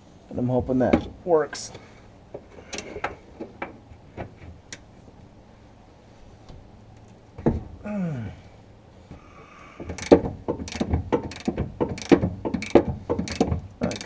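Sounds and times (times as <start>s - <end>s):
short falling groan: 7.8s - 10.0s
ratchet wrench clicking: 9.8s - 14.0s.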